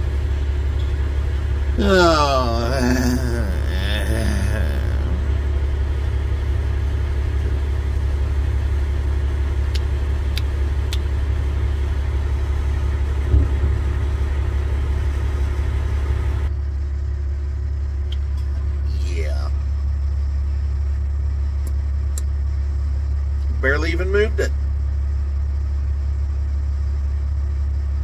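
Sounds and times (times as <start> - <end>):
vehicle engine idling: 0.0 - 28.0
brief thump: 13.3 - 13.8.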